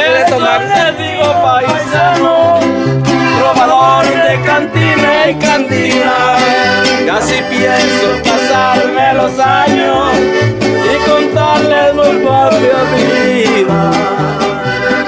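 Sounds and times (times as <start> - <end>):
accordion melody: 0.0 - 15.0
alternating bass notes: 0.0 - 15.0.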